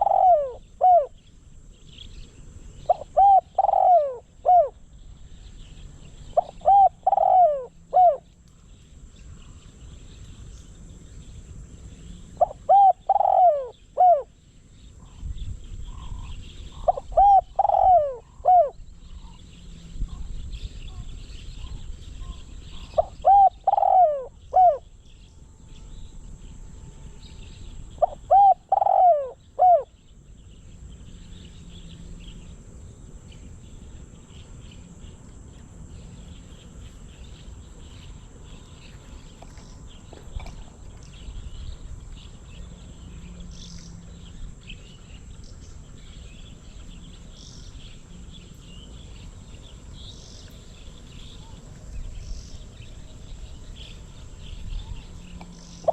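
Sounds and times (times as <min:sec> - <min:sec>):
dove cooing: 0:00.0 - 0:01.2, 0:02.9 - 0:04.8, 0:06.4 - 0:08.3, 0:12.4 - 0:14.3, 0:16.0 - 0:18.8, 0:20.0 - 0:24.9, 0:27.9 - 0:30.0, 0:54.7 - 0:55.9.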